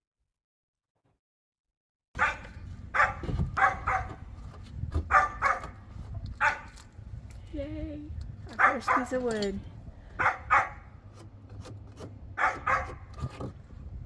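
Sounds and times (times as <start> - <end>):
dog barking: 2.2 - 4.2, 5.1 - 5.8, 6.4 - 6.7, 8.6 - 9.2, 10.2 - 10.9, 12.4 - 13.1
low steady rumble: 2.3 - 14.0.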